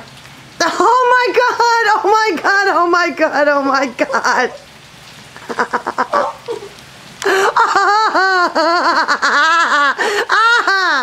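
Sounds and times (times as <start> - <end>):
person laughing: 5.4 - 11.0.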